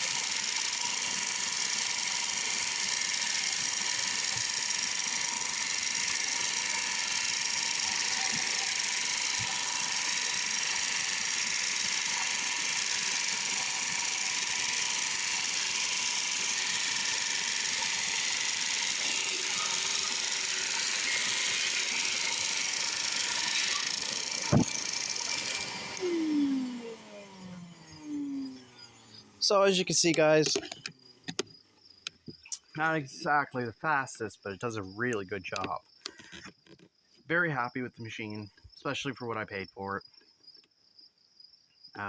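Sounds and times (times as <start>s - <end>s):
drum sander hissing: 0.0s - 30.9s
motor winding down: 0.0s - 33.4s.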